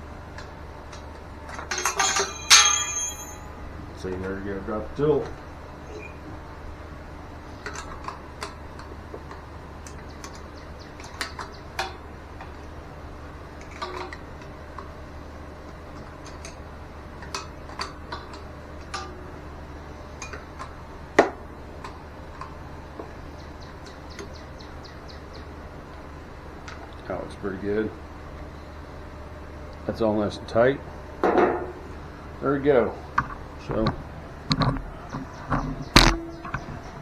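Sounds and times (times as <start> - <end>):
steady low hum: 0.0 - 37.0
metal tools clinking: 1.5 - 3.6
sharp metallic knock: 35.6 - 36.8.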